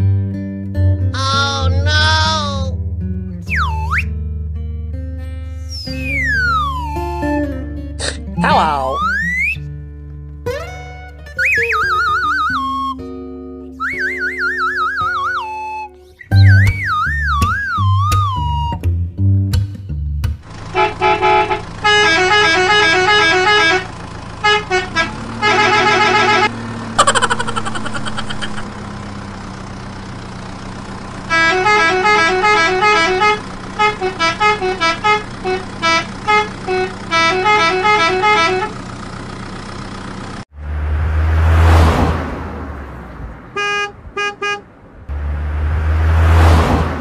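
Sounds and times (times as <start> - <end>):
low motor hum: 20.4 - 41.6.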